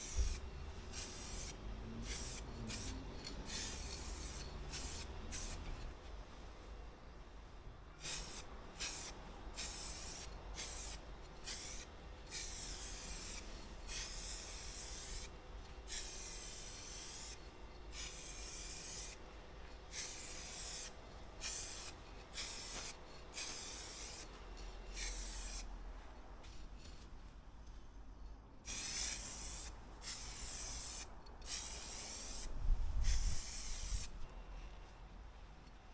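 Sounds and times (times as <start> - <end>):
spray can hissing: 0.0 - 5.6, 8.0 - 15.3, 15.9 - 19.2, 19.9 - 24.3, 24.9 - 25.7, 28.7 - 34.1.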